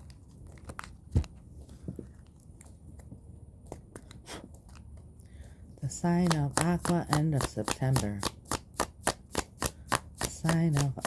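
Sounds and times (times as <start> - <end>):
cards being shuffled: 6.1 - 11.0.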